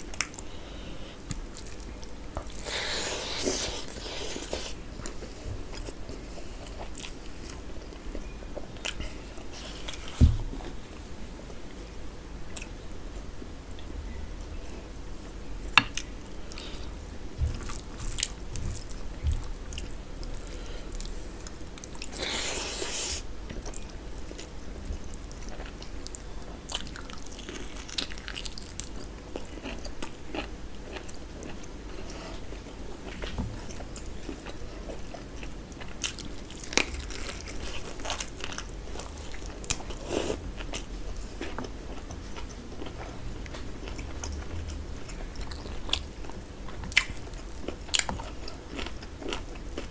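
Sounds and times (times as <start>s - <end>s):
person chewing and biting food: 29.4s - 44.5s, 45.1s - 49.9s.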